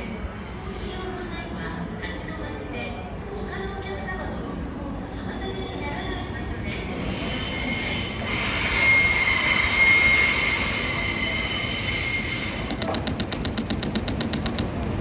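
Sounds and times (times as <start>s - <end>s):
train rumbling along track: 0.0s - 15.0s
train wheels squealing: 6.8s - 12.8s
quick regular clicks: 12.7s - 14.8s.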